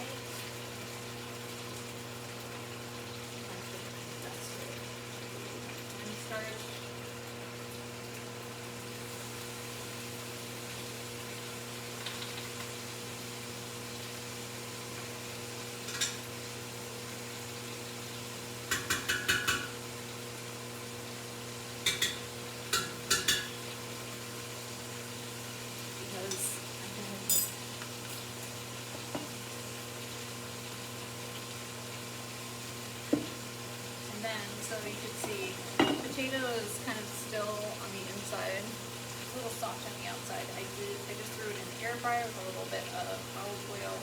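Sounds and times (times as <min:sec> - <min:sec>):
light sizzling: 0:00.0 - 0:44.0
utensils clinking against pot: 0:27.2 - 0:28.2, 0:35.8 - 0:36.2.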